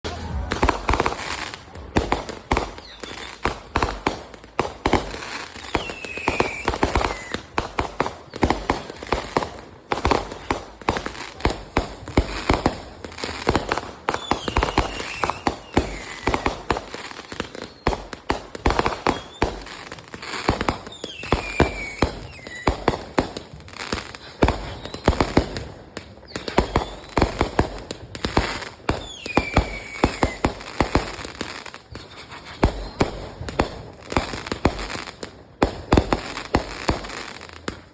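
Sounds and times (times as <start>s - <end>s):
fireworks cracks and bangs: 0.0s - 37.9s
firework falling whistle: 0.1s - 1.6s, 2.6s - 3.4s, 5.6s - 7.4s, 14.2s - 18.0s, 20.7s - 22.9s, 28.9s - 30.6s, 31.9s - 33.5s.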